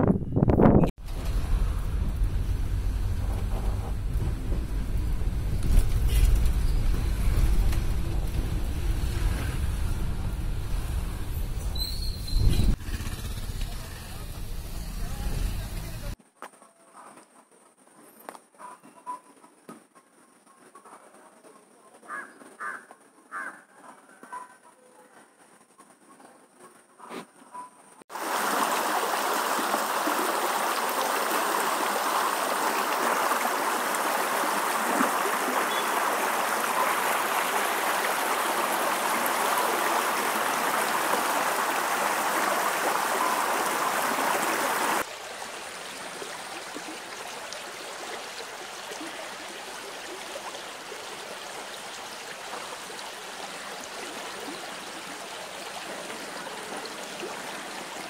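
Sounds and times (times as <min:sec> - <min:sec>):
stream water rushing: 0:28.1 - 0:58.0.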